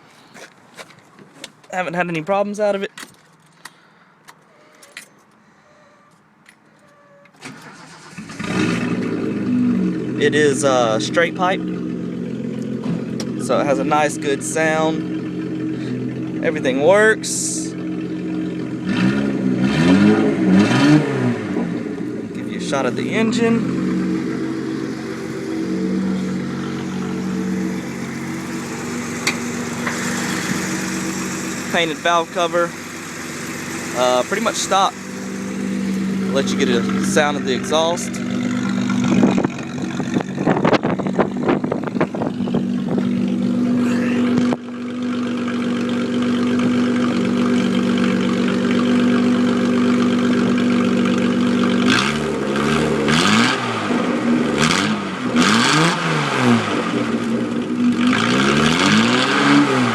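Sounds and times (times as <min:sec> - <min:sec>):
car engine catching: 0:00.3 - 0:16.4, 0:17.7 - 0:59.9
keys jangling: 0:04.5 - 0:05.4.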